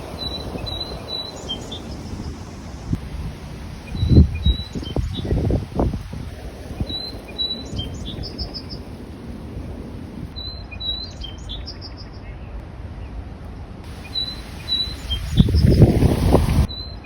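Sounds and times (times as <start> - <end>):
songbird singing: 0.0 - 13.2, 13.9 - 17.0.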